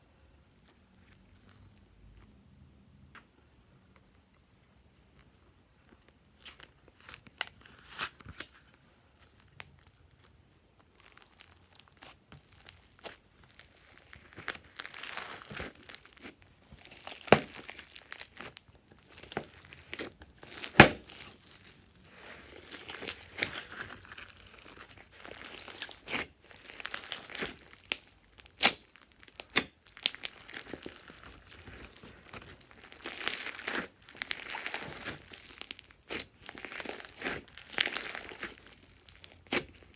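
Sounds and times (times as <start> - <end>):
slime crackling and popping: 9.2 - 39.9.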